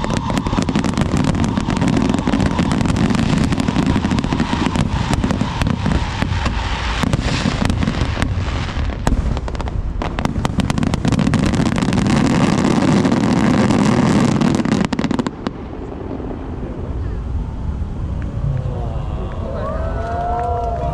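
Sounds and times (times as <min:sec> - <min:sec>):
low rumble: 0:00.0 - 0:11.0, 0:15.3 - 0:20.9
fireworks cracking and popping: 0:00.0 - 0:16.7.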